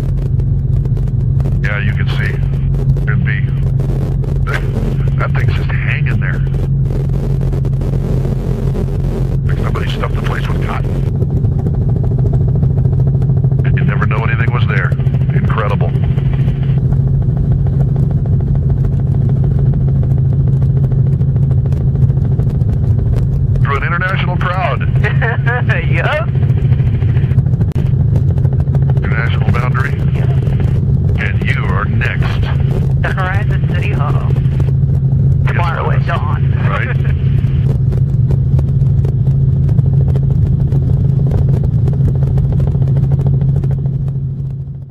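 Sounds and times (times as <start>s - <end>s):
dense irregular ticking: 0.0s - 44.9s
helicopter rotor drone: 0.0s - 44.9s.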